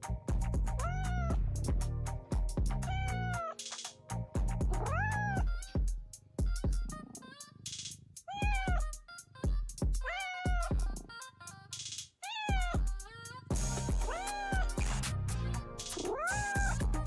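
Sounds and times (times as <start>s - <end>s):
music with heavy beat: 0.0s - 11.2s, 11.8s - 17.0s
cat meowing: 0.8s - 1.4s, 2.8s - 3.6s, 4.7s - 5.7s, 8.3s - 8.9s, 10.0s - 10.8s, 12.2s - 12.9s, 14.0s - 14.9s, 16.0s - 16.8s.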